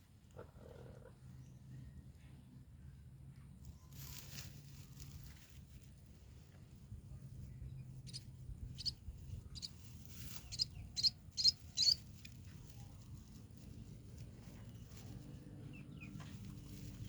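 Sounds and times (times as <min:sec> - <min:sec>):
baby birds cheeping: 0:07.7 - 0:12.1.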